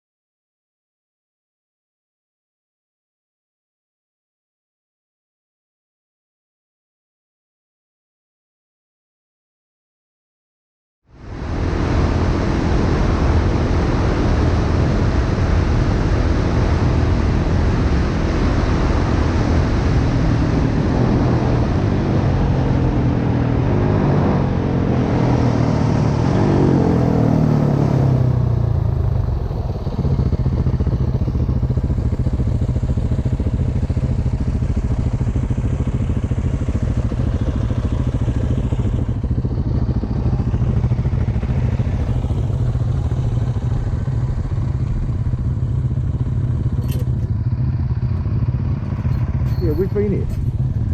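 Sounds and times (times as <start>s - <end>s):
wind rushing over microphone: 11.2s - 46.8s
dirt bike engine: 11.2s - 50.9s.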